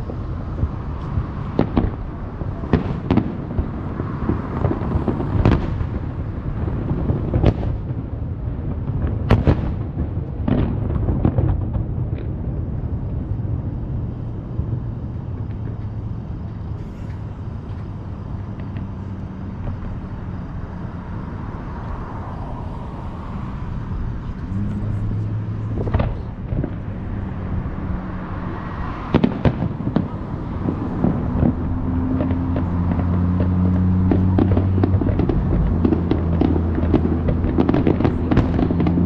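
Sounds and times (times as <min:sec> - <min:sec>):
fireworks bang: 0:00.0 - 0:16.0, 0:18.4 - 0:39.0
fireworks crackling: 0:00.0 - 0:39.0.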